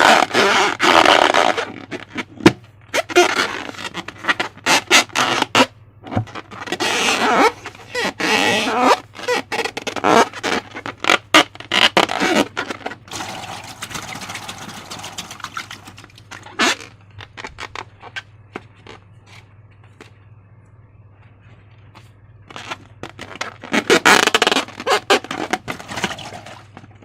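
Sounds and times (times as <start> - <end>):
slime squelching by hand: 12.2 - 17.7.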